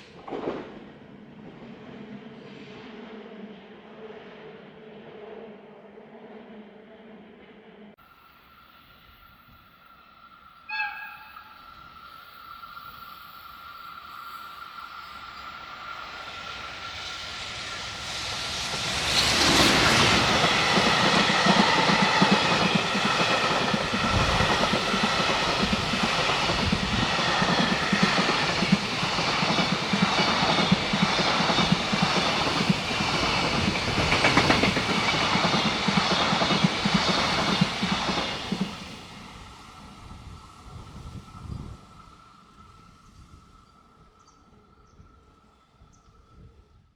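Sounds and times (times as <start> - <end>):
freight train wheels clattering: 17.6 - 38.9.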